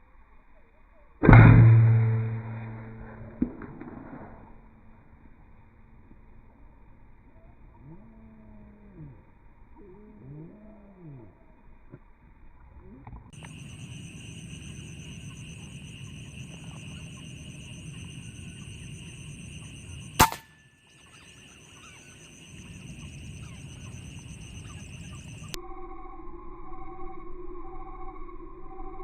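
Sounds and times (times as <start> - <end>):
air rifle shot: 20.2 - 20.6.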